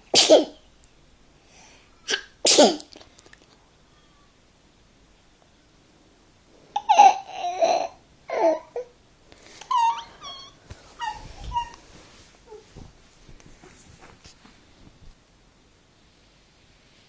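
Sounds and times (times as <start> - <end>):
baby crying and squeaking: 9.6 - 11.8.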